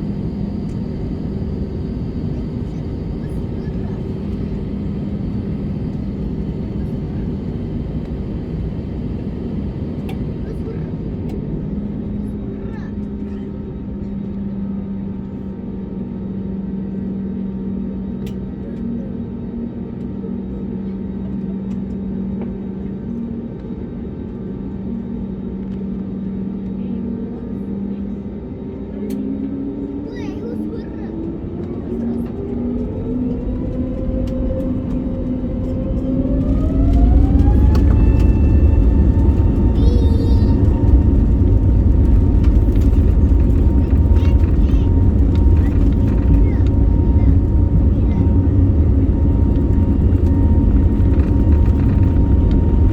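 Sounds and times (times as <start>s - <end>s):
low rumble: 0.0s - 15.5s, 31.0s - 52.9s
jet engines idling drone: 0.0s - 15.7s, 20.9s - 52.9s.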